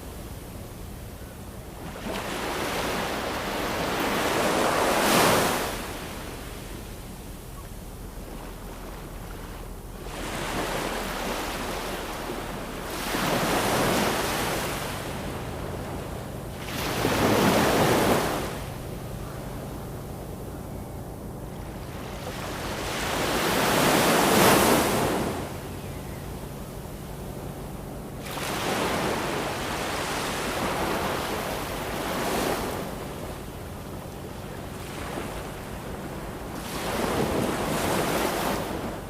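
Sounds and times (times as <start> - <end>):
ocean waves breaking on shore: 1.5 - 20.7, 21.4 - 39.0.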